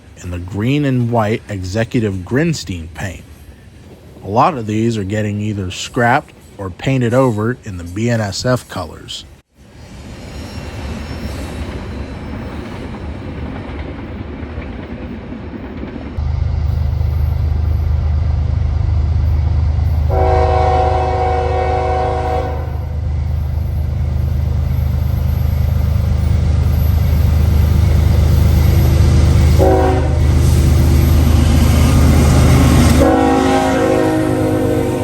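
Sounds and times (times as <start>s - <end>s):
locomotive engine rumble: 0.0s - 9.1s, 15.7s - 35.0s
locomotive chime horn blasts: 20.0s - 23.0s, 29.4s - 30.4s, 31.9s - 35.0s.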